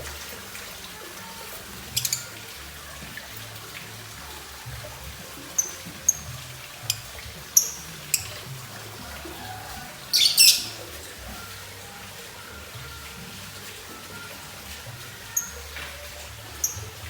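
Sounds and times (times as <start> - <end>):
lovebird chirping: 10.1 - 10.8.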